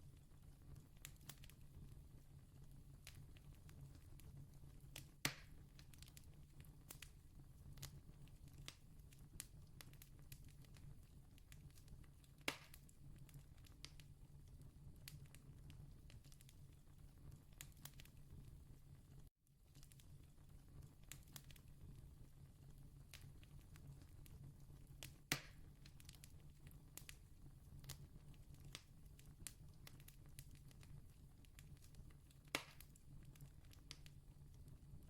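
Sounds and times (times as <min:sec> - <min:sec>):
campfire crackling: 0:25.0 - 0:27.2, 0:27.8 - 0:34.2.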